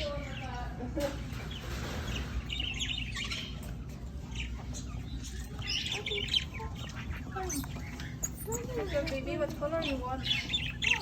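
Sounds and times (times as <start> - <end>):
birds chattering: 0.0 - 11.0.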